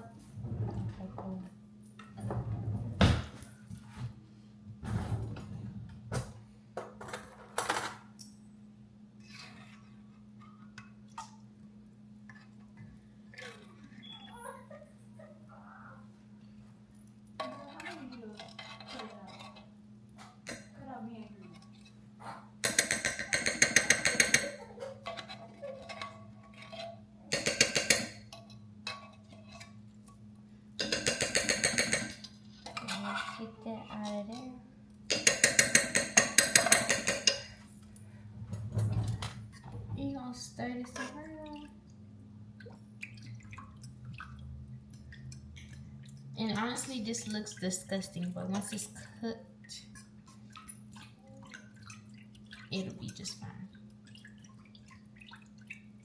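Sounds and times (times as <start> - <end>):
faint steady hum: 0.0 - 56.0
utensils knocking against a pot: 17.4 - 29.8, 30.8 - 34.4, 35.1 - 37.6
kitchen utensils clicking: 35.1 - 38.0.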